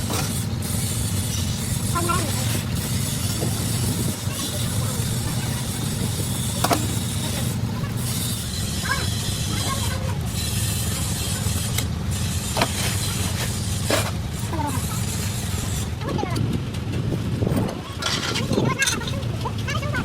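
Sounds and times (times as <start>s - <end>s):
steady low rumble: 13.2s - 20.0s.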